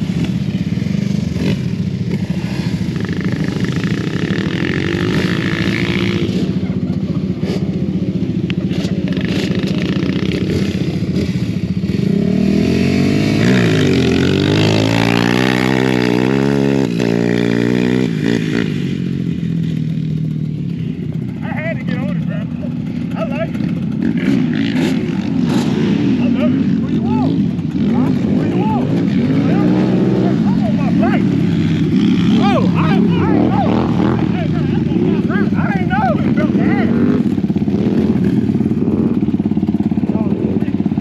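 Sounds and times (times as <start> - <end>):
off-road vehicle engines running: 0.0 - 41.0
engine revving hard: 1.0 - 6.6, 8.7 - 18.8, 23.2 - 39.2.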